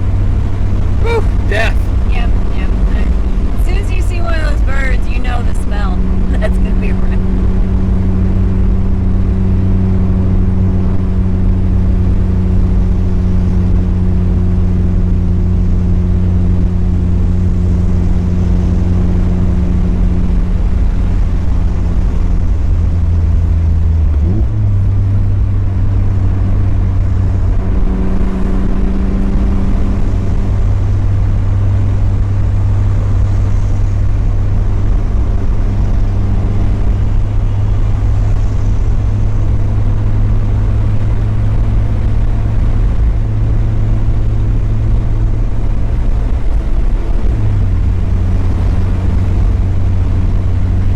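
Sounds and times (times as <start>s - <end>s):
car engine droning: 0.0s - 50.9s.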